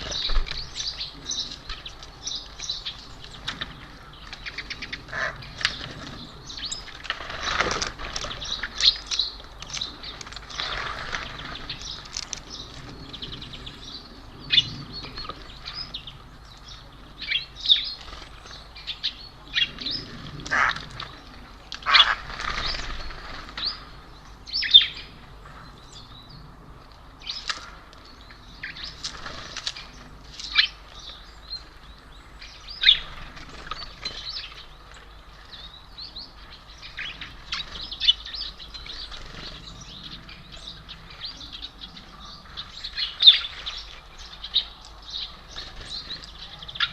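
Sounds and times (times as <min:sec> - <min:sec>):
wings fluttering: 0:00.0 - 0:13.7, 0:19.7 - 0:24.0, 0:28.7 - 0:31.0, 0:32.8 - 0:35.6, 0:37.2 - 0:40.4
small birds chirping: 0:00.0 - 0:46.9.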